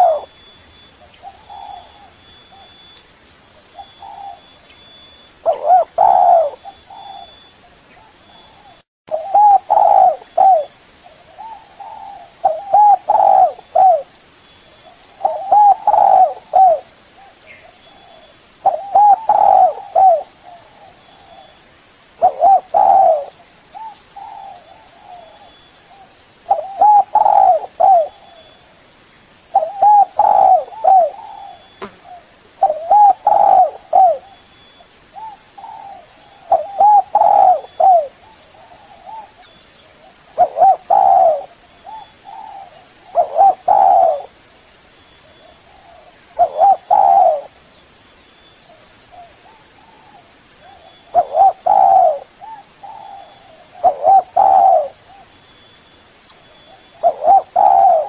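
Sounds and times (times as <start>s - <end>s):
dove cooing: 0.0s - 2.9s, 3.6s - 4.6s, 5.4s - 14.1s, 14.8s - 21.6s, 22.2s - 28.6s, 29.5s - 44.4s, 45.2s - 47.6s, 48.7s - 55.4s, 56.7s - 58.0s.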